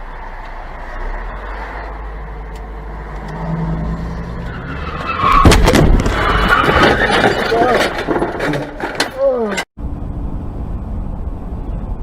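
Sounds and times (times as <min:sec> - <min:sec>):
tyres skidding: 0:00.0 - 0:09.7
car road noise: 0:00.0 - 0:12.0
car crash impacts: 0:05.0 - 0:09.2.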